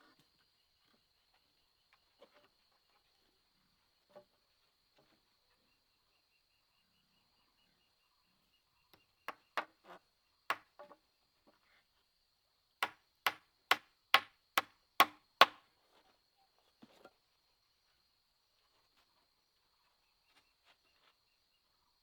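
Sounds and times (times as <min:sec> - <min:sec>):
blade chopping wood: 0:12.8 - 0:15.6.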